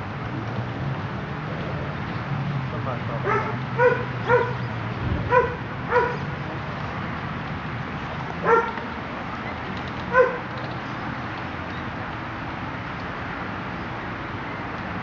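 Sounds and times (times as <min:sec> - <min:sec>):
dog barking: 0:03.2 - 0:04.6, 0:05.3 - 0:06.3, 0:08.4 - 0:08.8, 0:10.1 - 0:10.4.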